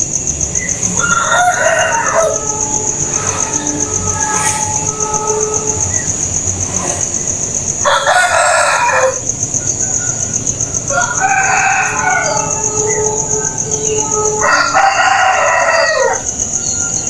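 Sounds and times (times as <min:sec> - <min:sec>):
pulsing high-pitched buzz: 0:00.0 - 0:15.6
loud bird calls: 0:00.0 - 0:17.0.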